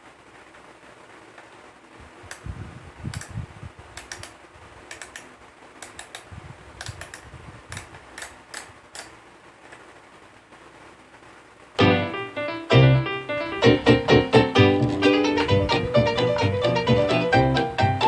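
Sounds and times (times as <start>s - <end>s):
plastic toy clicks and taps: 4.0s - 9.1s.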